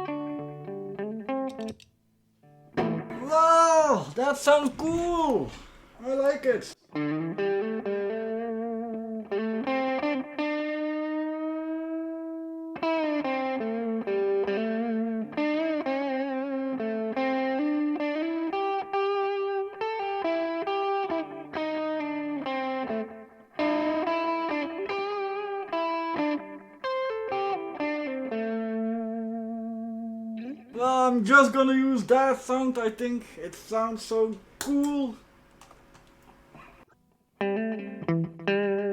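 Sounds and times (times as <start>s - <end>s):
electric guitar melody with delay: 0.0s - 3.2s, 6.9s - 30.7s, 37.0s - 38.9s.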